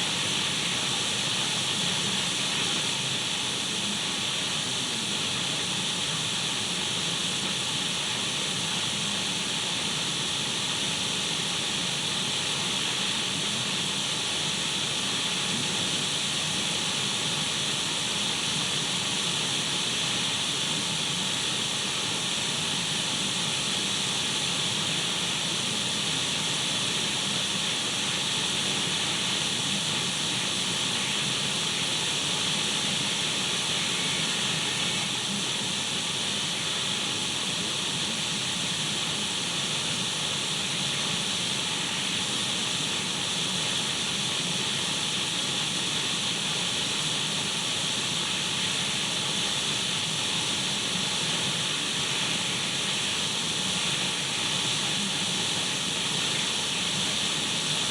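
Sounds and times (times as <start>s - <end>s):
radio static hiss: 28.0s - 35.7s.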